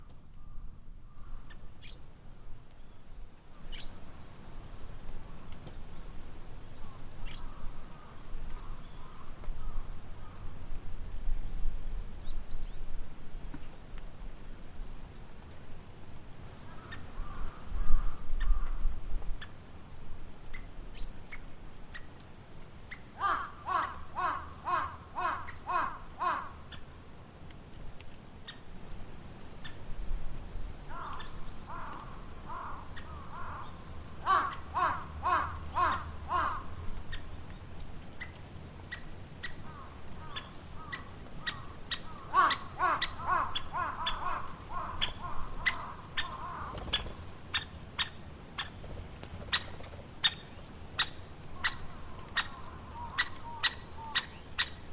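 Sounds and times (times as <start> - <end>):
woodpecker calling in harsh notes: 22.9 - 26.8, 30.9 - 37.3, 38.9 - 47.0.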